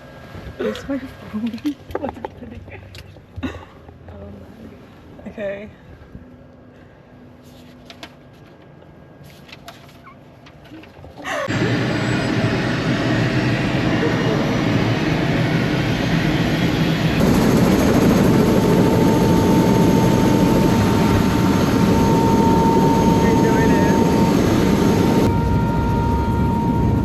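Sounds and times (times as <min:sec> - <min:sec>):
helicopter engine and rotor: 0:11.5 - 0:27.0.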